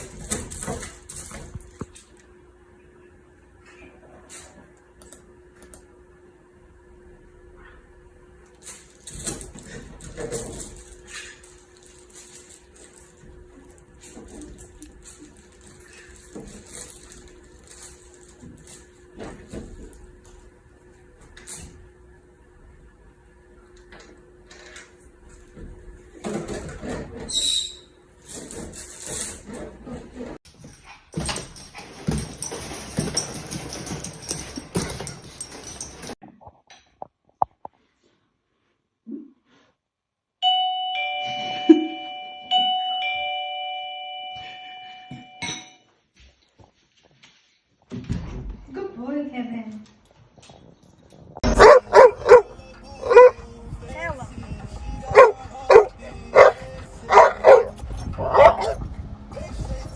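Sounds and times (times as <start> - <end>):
two-tone doorbell chime: 40.4 - 45.9
steady low hum: 51.3 - 59.9.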